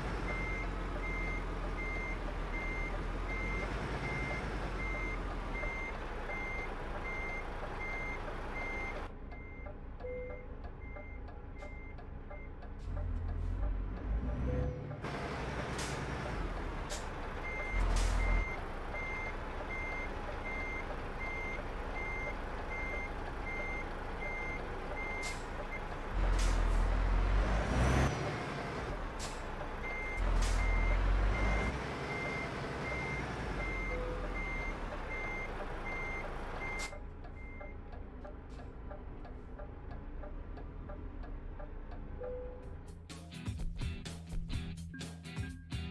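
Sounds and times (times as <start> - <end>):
diesel engine running: 0.0 - 44.9
truck reversing alarm beeping: 0.2 - 42.7.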